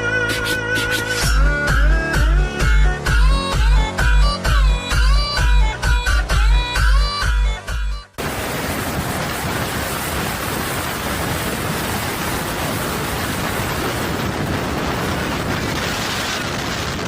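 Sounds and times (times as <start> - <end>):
heavy rain rushing: 8.2 - 17.0.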